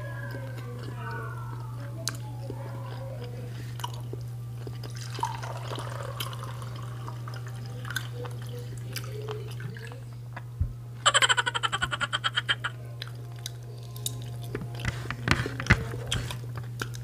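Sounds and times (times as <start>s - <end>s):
steady low hum: 0.0s - 17.0s
wet chewing and mouth-smacking: 0.2s - 5.4s, 13.0s - 17.0s.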